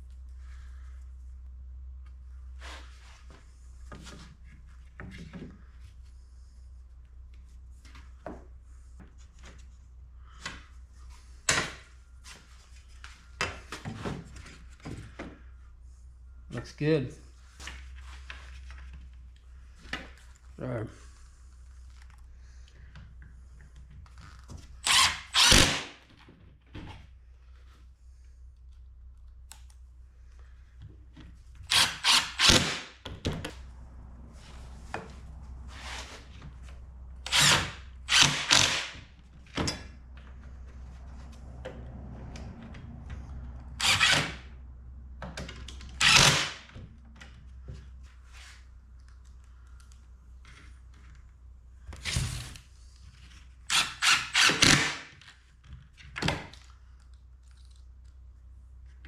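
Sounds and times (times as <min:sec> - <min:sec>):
power drill driving screws: 0:24.8 - 0:26.0, 0:31.7 - 0:32.9, 0:37.2 - 0:39.0, 0:43.8 - 0:44.4, 0:46.0 - 0:46.7, 0:53.7 - 0:55.1.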